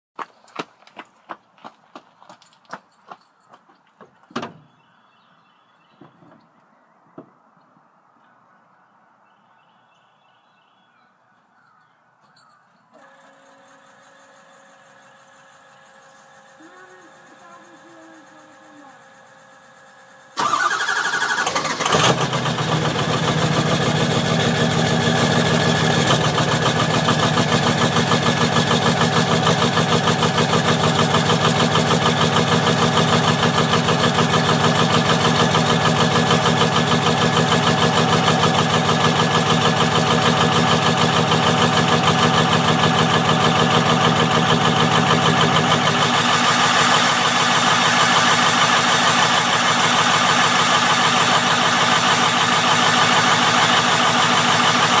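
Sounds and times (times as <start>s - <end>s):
diesel engine starting and idling: 13.0s - 55.0s.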